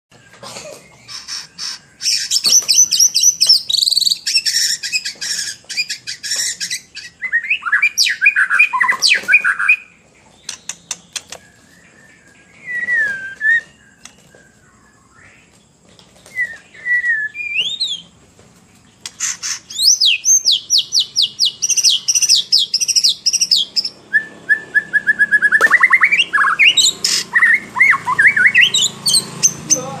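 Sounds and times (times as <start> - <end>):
bird singing trills and whistles: 0.2 - 15.6, 16.2 - 18.1, 19.0 - 30.0
sharp bird clicks: 10.4 - 11.6, 13.9 - 14.4, 25.5 - 28.7.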